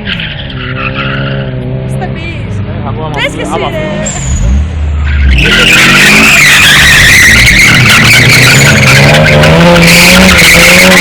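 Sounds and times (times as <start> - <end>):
car engine revving: 0.0 - 11.0
tyres squealing: 4.0 - 11.0.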